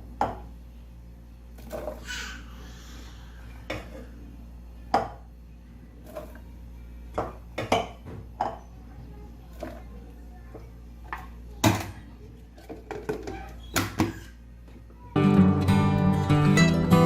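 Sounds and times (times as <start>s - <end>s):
utensils and containers clinking: 11.1s - 14.4s.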